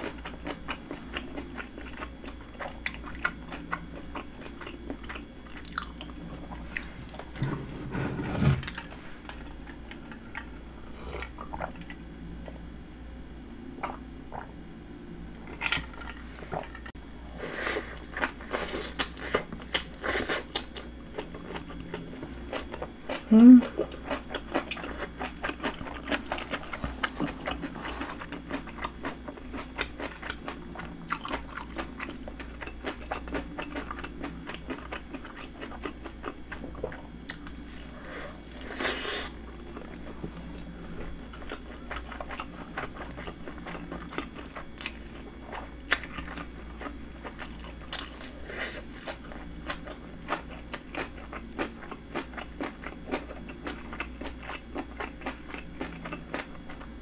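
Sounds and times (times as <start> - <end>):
crunchy chewing: 0.0 - 12.0, 17.8 - 57.0.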